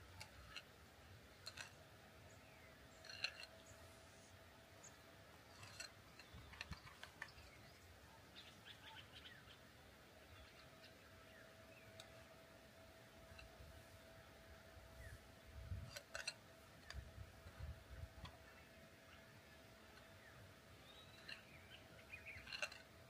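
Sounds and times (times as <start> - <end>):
faint bird chirps: 2.2 - 9.6, 18.4 - 22.9.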